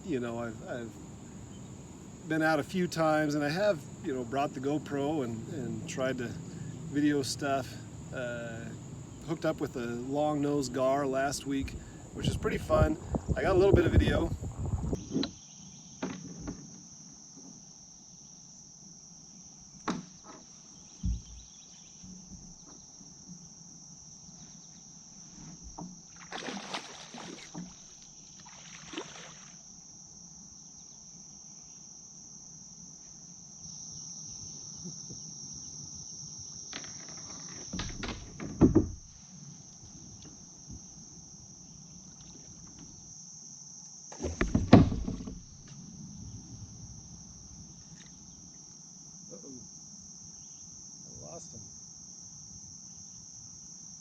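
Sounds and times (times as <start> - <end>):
insects droning: 0.0 - 54.0
kayak knocking and splashing: 11.7 - 15.2, 25.7 - 29.6, 44.1 - 45.7.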